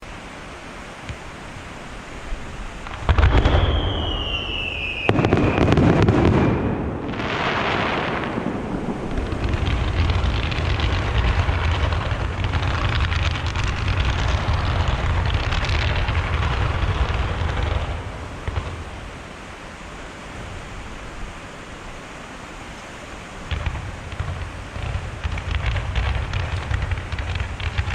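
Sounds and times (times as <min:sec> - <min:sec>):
fireworks crackling: 0:00.9 - 0:21.8, 0:23.4 - 0:27.9
firework bangs: 0:02.2 - 0:19.5, 0:23.4 - 0:27.9
falling firework whistle: 0:02.8 - 0:19.0.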